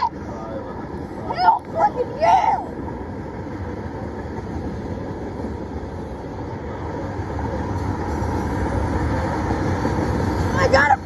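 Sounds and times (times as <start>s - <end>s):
steel wheels rolling on rail: 0.0s - 11.0s.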